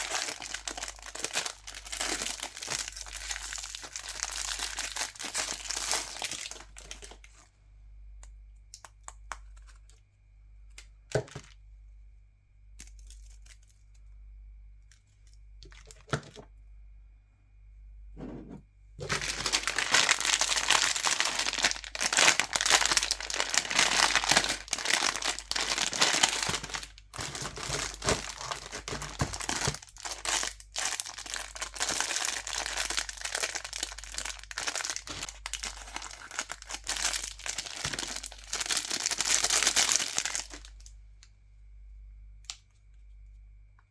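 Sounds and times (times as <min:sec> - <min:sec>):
plastic wrappers crinkling: 0:00.0 - 0:07.5, 0:12.8 - 0:13.9, 0:15.6 - 0:16.4, 0:19.0 - 0:40.9.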